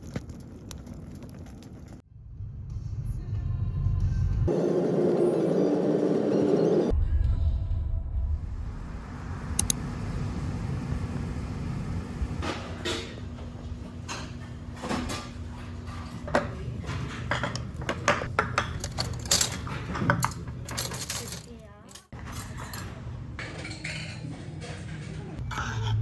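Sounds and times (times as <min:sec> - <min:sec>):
camping gear clinks and knocks: 0:17.2 - 0:22.9.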